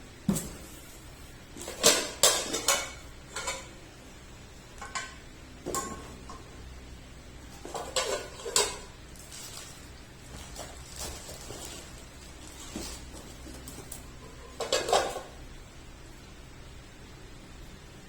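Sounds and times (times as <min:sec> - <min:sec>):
kitchen utensils clinking: 0:01.6 - 0:03.8, 0:04.8 - 0:06.6, 0:07.5 - 0:15.4.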